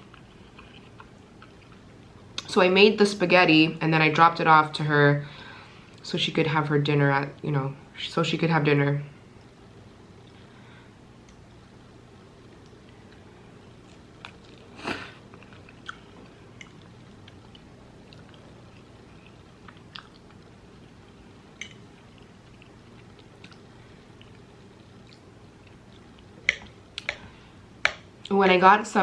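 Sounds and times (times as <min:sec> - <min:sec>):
person chewing: 0:00.0 - 0:02.1, 0:12.4 - 0:28.3
faint background hum: 0:00.0 - 0:29.0.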